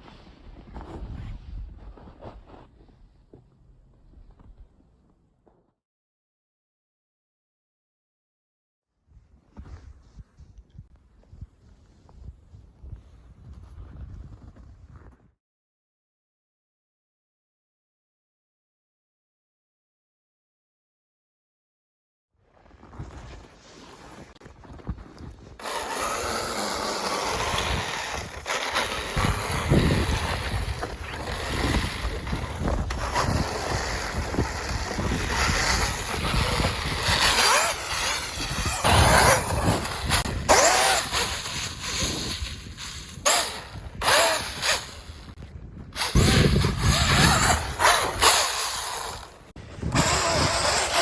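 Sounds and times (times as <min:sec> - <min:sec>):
wind noise on microphone: 0:00.0 - 0:02.7, 0:09.1 - 0:15.3, 0:22.8 - 0:51.0
electric motor whine: 0:25.6 - 0:45.3.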